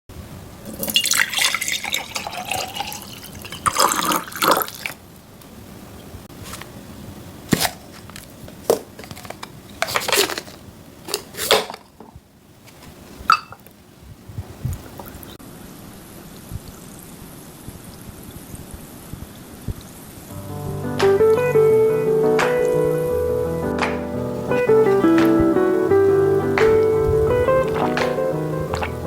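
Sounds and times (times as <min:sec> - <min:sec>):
water pouring and splashing: 0:00.7 - 0:05.0, 0:26.7 - 0:29.0
water drips: 0:00.8 - 0:05.0, 0:24.4 - 0:29.0.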